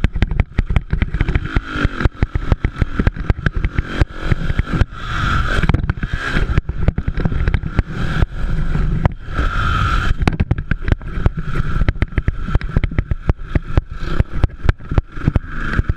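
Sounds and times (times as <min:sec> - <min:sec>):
dirt bike engines running: 0:00.0 - 0:15.9.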